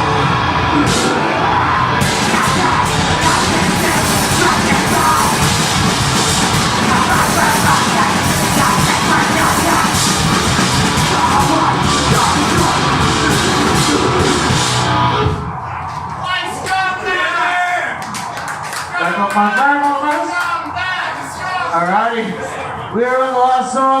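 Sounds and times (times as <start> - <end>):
distorted guitars: 0.0 - 17.6
drums: 0.0 - 21.7
harsh yelled vocals: 0.0 - 24.0.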